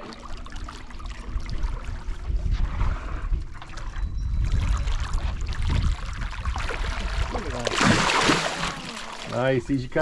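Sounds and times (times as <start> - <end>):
water sloshing against boat hull: 0.0 - 10.0
wind rumbling on microphone: 1.0 - 8.1
short splashes: 6.6 - 9.5.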